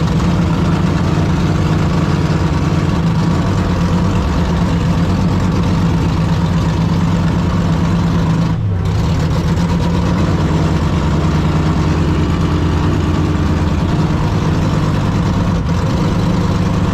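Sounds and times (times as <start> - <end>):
car engine idling: 0.0 - 16.9.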